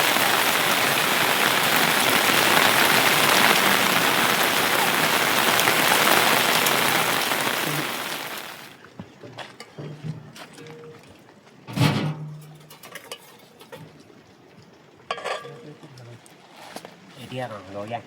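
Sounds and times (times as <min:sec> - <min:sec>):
heavy rain falling: 0:00.0 - 0:08.8.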